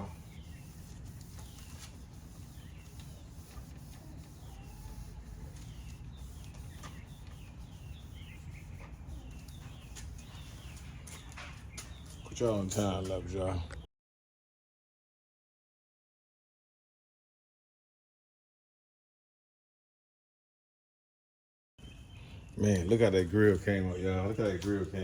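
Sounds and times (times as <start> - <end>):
small birds chirping: 0.0 - 13.9, 21.8 - 25.0.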